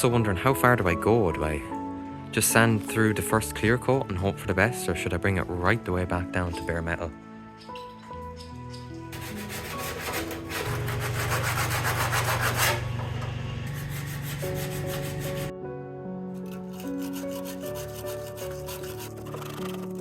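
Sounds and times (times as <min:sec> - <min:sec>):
sanding paint on metal: 0:09.2 - 0:12.8, 0:13.7 - 0:15.5, 0:16.4 - 0:20.0.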